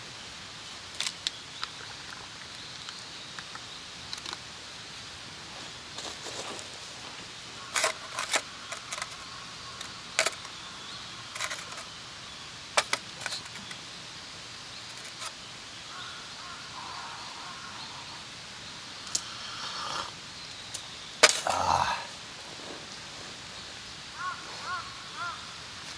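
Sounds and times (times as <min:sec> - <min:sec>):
outdoor background hiss: 0:00.0 - 0:25.9
small objects clicking and clinking: 0:07.8 - 0:09.2, 0:09.8 - 0:10.5, 0:11.4 - 0:11.8, 0:12.8 - 0:13.8, 0:14.9 - 0:15.3, 0:21.2 - 0:21.6.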